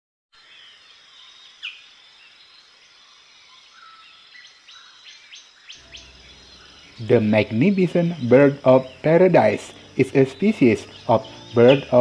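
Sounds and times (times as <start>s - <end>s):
bird calls: 2.8s - 12.0s
high-pitched insect drone: 5.8s - 12.0s.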